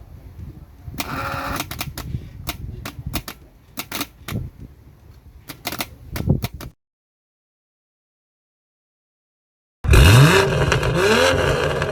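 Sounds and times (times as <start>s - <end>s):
sharp clicks and knocks: 1.0s - 4.5s, 5.5s - 6.8s.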